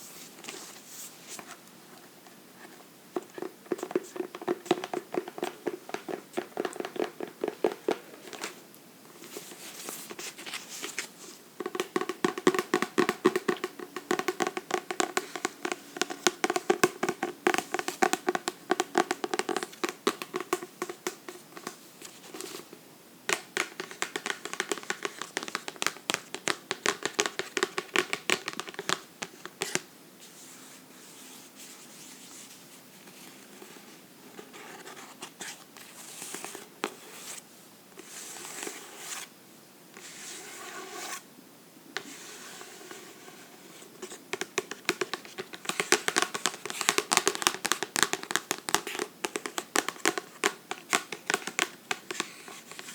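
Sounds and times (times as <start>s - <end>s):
fingers tapping on a book: 3.2s - 8.5s, 11.6s - 21.8s, 23.3s - 29.9s, 44.0s - 52.9s.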